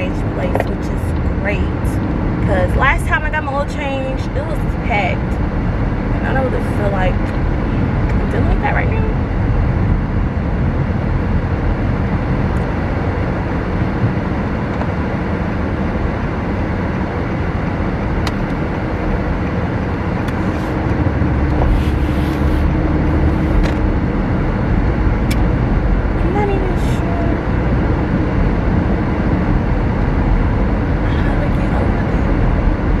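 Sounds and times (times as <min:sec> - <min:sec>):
road and engine noise in car: 0:00.0 - 0:33.0.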